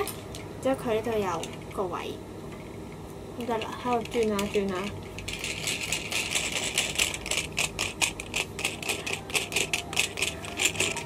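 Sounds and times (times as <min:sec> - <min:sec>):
toy knob clicking: 0:08.0 - 0:11.0.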